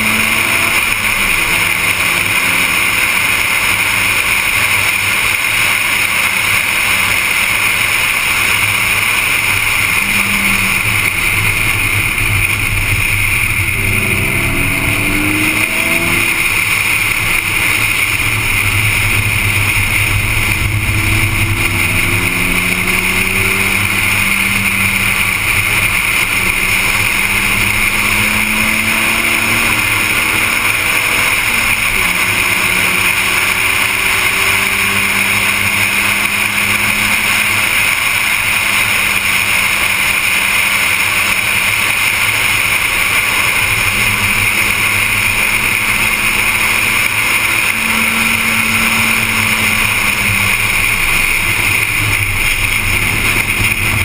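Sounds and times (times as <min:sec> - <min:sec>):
car engine at speed: 0:00.0 - 0:54.0
steady rushing noise: 0:00.0 - 0:54.0.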